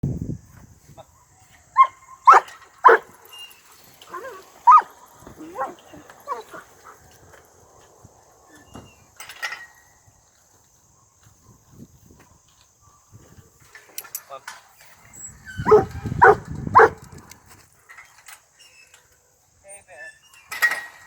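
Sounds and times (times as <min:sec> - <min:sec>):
dogs barking: 0:01.2 - 0:03.3, 0:04.1 - 0:07.1, 0:15.6 - 0:17.1.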